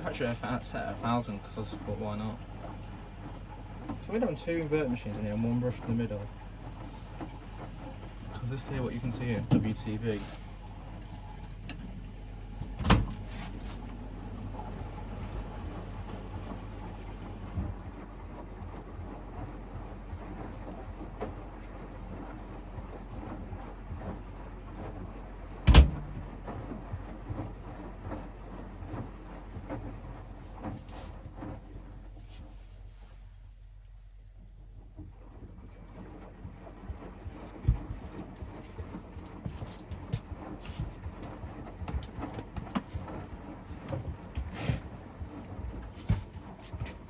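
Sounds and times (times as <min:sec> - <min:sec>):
washing machine tumbling: 0:00.0 - 0:32.3, 0:34.7 - 0:47.0
laundry swishing in water: 0:13.2 - 0:47.0
sharp loud knock: 0:25.7 - 0:26.2
knocks from load in drum: 0:25.7 - 0:26.4.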